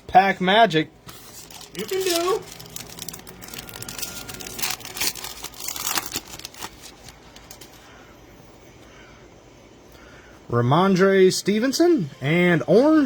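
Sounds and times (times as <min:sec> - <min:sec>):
foil wrapper tearing and crinkling: 0:01.2 - 0:07.8.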